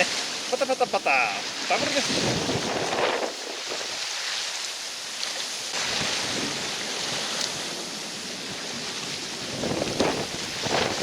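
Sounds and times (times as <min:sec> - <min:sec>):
water washing against bank: 0:00.0 - 0:11.0
wind on microphone: 0:01.8 - 0:04.1, 0:08.4 - 0:11.0.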